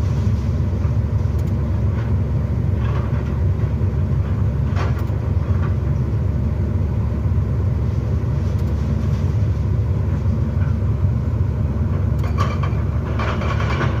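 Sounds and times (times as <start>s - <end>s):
excavator engine rumbling: 0.0s - 14.0s
clattering noise: 12.2s - 14.0s.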